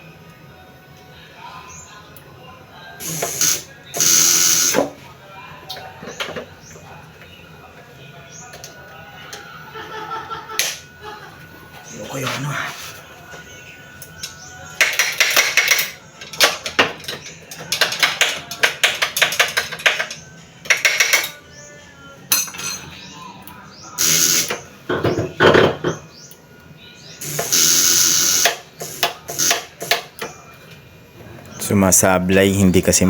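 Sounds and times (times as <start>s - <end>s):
sharp electrical clicks: 10.6s - 10.8s, 14.0s - 16.6s, 27.2s - 30.3s.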